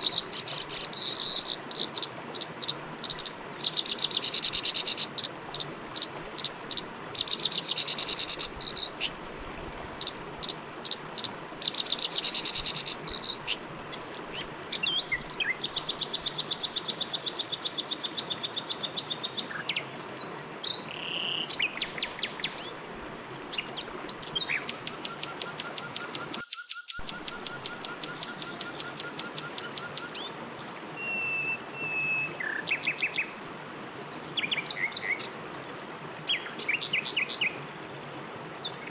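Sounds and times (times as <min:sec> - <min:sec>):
river water flowing: 0:00.0 - 0:26.4, 0:27.0 - 0:38.9
birds chirping and trilling: 0:23.5 - 0:33.3.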